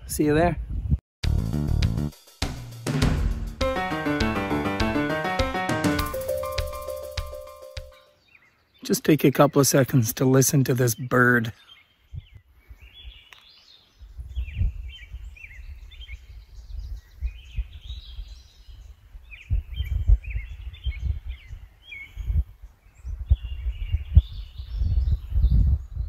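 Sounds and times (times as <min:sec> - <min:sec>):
songbird singing: 0:06.3 - 0:26.0.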